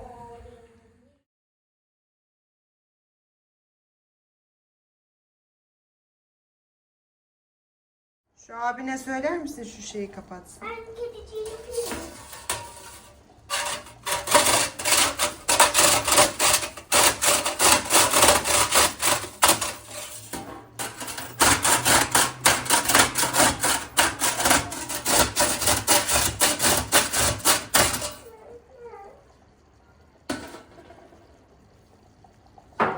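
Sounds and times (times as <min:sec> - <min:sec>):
sponge scrubbing hard surface: 0:11.3 - 0:28.2.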